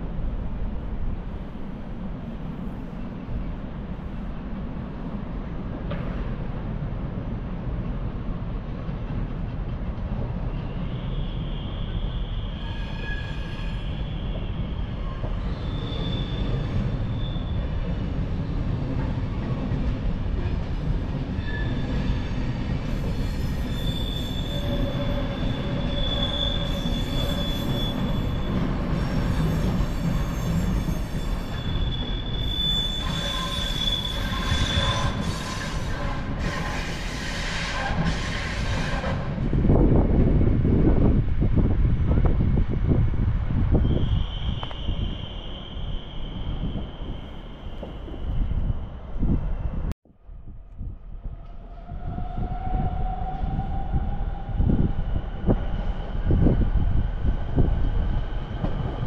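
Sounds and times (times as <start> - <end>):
train rumbling: 0.0 - 59.0
wheel squeals: 10.5 - 17.9, 21.3 - 39.0, 43.7 - 49.0.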